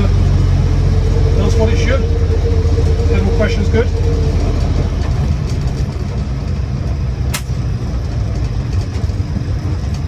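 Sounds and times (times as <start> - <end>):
car engine droning: 0.0 - 10.0
road noise: 0.0 - 10.0
sharp click: 7.3 - 7.6.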